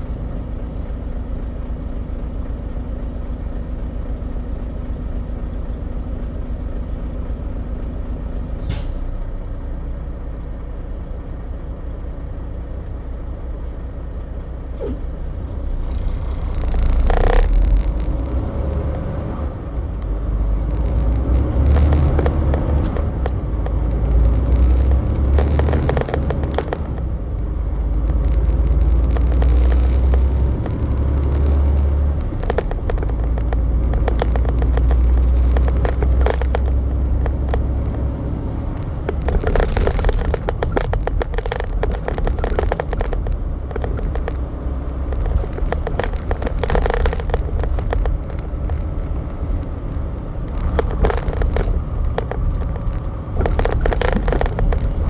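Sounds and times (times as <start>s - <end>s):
road noise: 0.0s - 55.0s
truck engine rumble: 0.0s - 55.0s.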